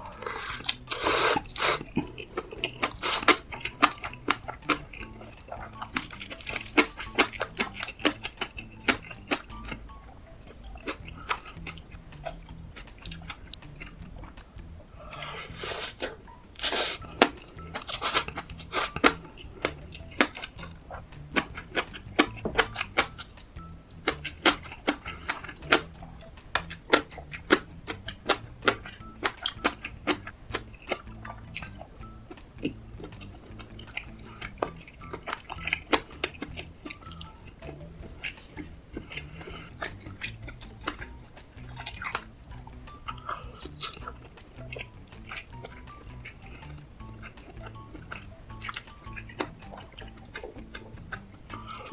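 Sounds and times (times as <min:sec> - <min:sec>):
chewing with wet mouth clicks: 0:00.0 - 0:09.8, 0:10.4 - 0:51.9
scraping or slurping: 0:00.0 - 0:09.8, 0:10.8 - 0:23.3, 0:32.6 - 0:42.3.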